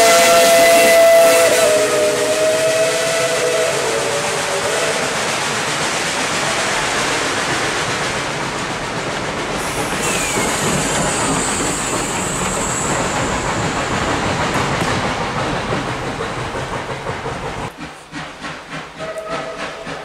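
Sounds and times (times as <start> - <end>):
steam whistle blast: 0.0 - 5.2, 9.6 - 13.6, 19.0 - 20.0
train wheels rumbling on rails: 0.0 - 20.0
high wheel squeal: 9.6 - 14.3.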